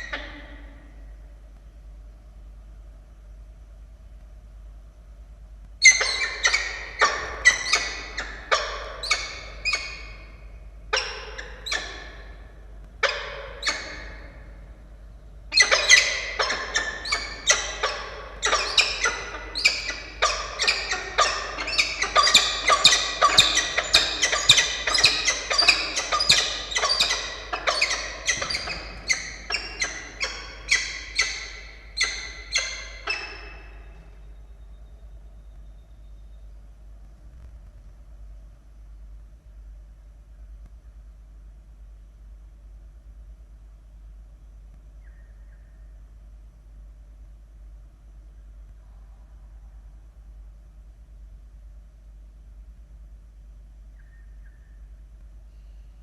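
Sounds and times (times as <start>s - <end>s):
falcons harsh calls: 15.5s - 33.9s.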